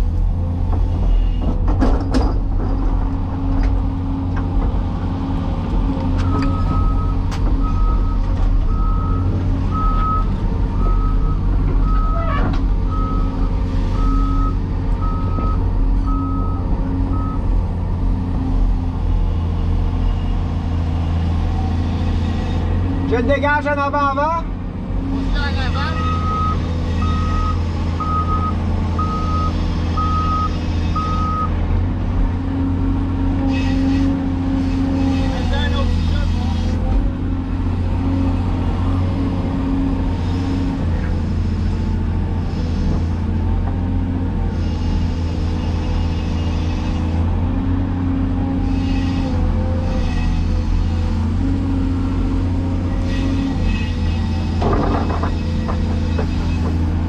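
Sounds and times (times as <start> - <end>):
diesel engine running: 0.0 - 57.0
travel alarm beeps: 6.2 - 12.2, 14.0 - 17.4, 26.0 - 31.5.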